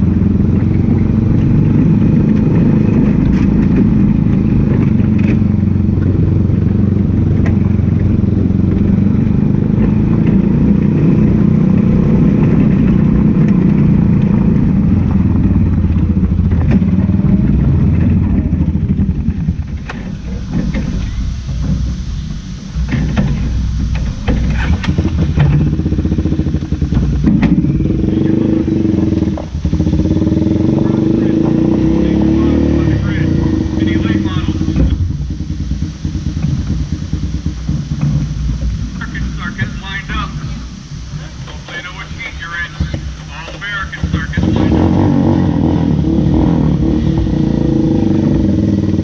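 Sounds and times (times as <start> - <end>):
race car engine running hard: 0.0 - 49.0
sharp knocks and clatter: 2.2 - 6.2, 15.9 - 22.1, 22.7 - 27.6, 36.3 - 39.1.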